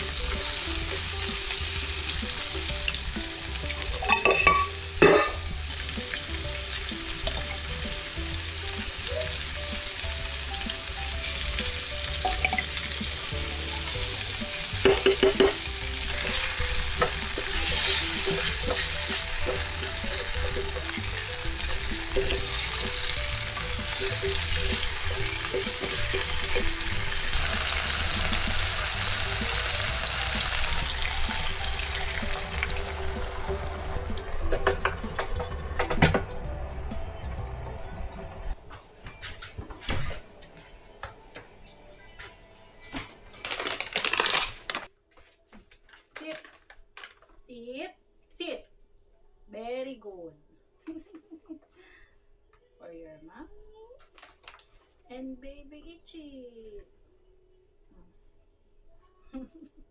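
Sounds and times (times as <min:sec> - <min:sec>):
food sizzling in a pan: 0:00.0 - 0:36.2
utensil clattering against pan: 0:03.7 - 0:06.2, 0:14.5 - 0:28.7.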